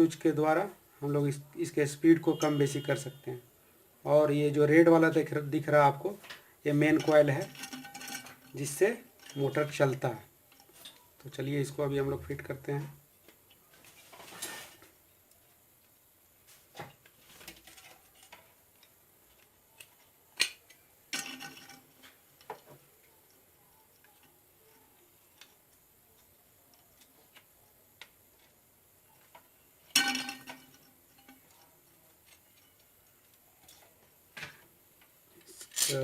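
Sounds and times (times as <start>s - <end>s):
metal parts clicking and clinking: 6.2s - 11.1s, 17.4s - 25.7s, 29.2s - 34.0s, 35.4s - 36.0s.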